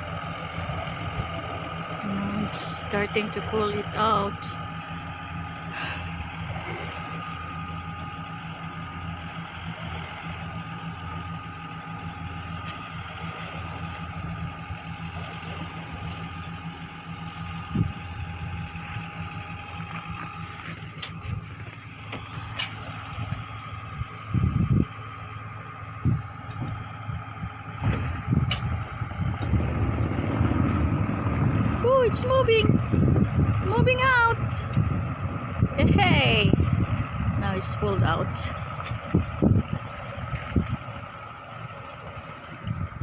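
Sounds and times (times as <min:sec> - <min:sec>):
steady high whine: 0:00.0 - 0:43.0
tractor engine running: 0:00.0 - 0:43.0
truck engine running: 0:00.0 - 0:43.0.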